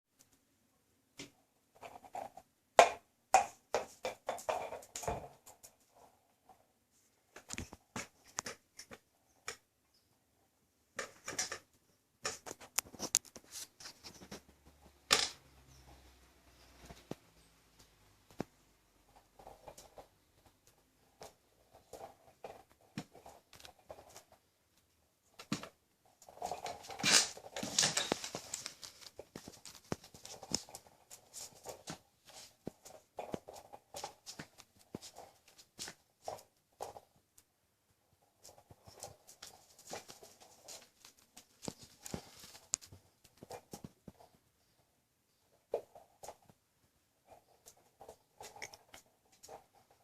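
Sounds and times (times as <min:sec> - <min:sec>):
puppy playing with a ball: 0:01.2 - 0:06.6, 0:18.3 - 0:24.4, 0:25.2 - 0:37.2, 0:38.1 - 0:44.5.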